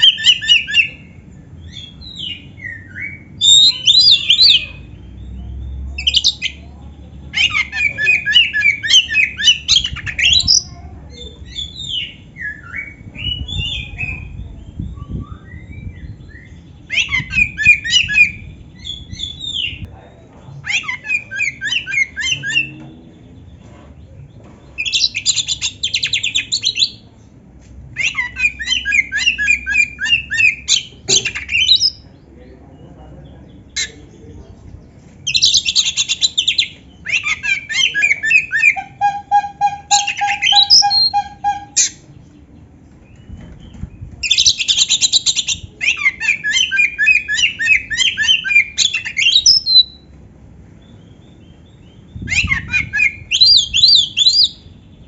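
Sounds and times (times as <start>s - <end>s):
songbird singing: 0.0s - 55.0s
rapid bird trill: 35.3s - 42.2s, 50.9s - 54.8s.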